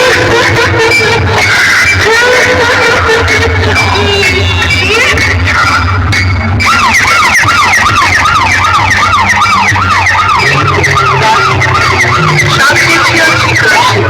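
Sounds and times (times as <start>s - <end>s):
steady bass: 0.0s - 14.0s
warbling siren effect: 5.8s - 14.0s.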